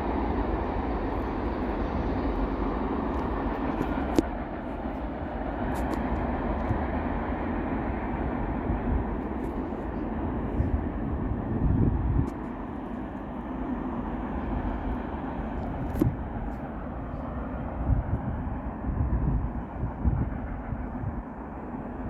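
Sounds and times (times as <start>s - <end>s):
train rolling past: 0.0s - 15.6s, 16.2s - 22.0s.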